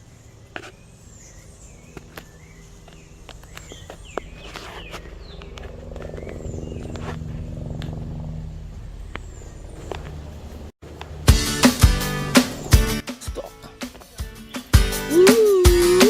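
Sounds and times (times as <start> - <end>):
small birds chirping: 0.0 - 11.2, 12.4 - 16.0
low steady hum: 0.0 - 11.3.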